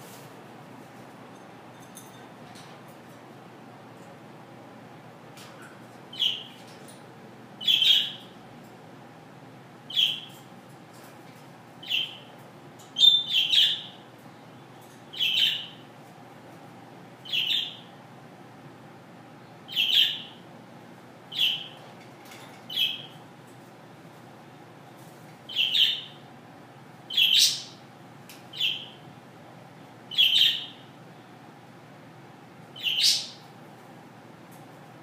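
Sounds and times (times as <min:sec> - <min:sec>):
parrot high-pitched calls: 0:06.1 - 0:06.6, 0:07.6 - 0:08.3, 0:13.0 - 0:14.0, 0:15.1 - 0:15.8, 0:17.2 - 0:17.8, 0:19.7 - 0:20.4, 0:21.3 - 0:21.8, 0:25.5 - 0:26.2, 0:27.1 - 0:27.8, 0:28.5 - 0:29.0, 0:30.1 - 0:30.8, 0:32.8 - 0:33.4.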